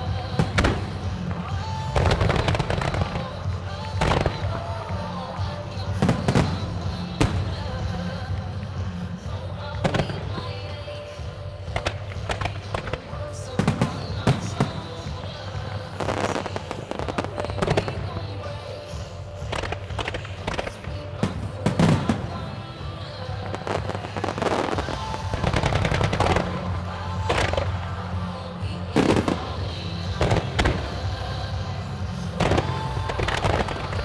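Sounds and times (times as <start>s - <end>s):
fireworks bursting: 0.0s - 34.0s
fireworks crackling: 0.0s - 34.0s
music: 0.0s - 34.0s.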